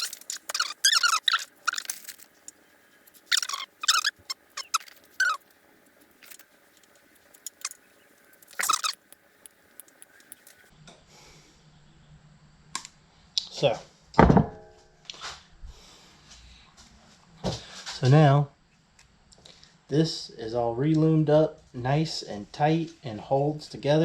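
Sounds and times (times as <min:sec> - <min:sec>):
plastic wire loom squeaking: 0:00.0 - 0:02.2, 0:03.3 - 0:05.4, 0:08.4 - 0:09.1.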